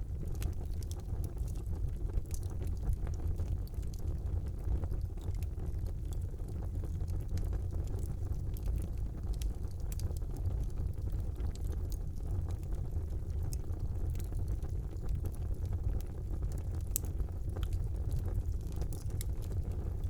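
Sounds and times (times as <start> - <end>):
fire roaring: 0.0 - 20.0
wood crackling and popping: 0.0 - 20.0.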